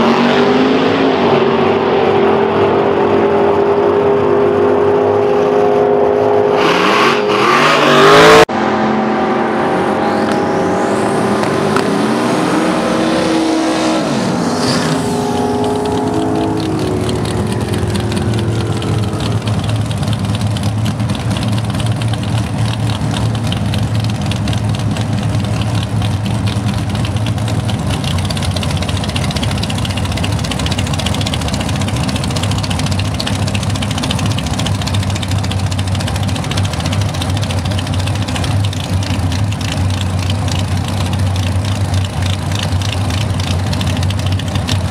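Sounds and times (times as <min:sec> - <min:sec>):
car engine idling: 0:09.6 - 0:44.9.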